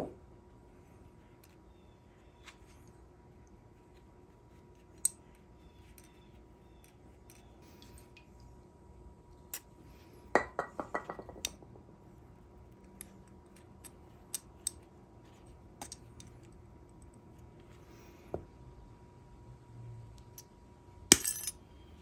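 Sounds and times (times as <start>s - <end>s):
small metal parts clinking: 15.8s - 16.4s, 21.1s - 21.6s.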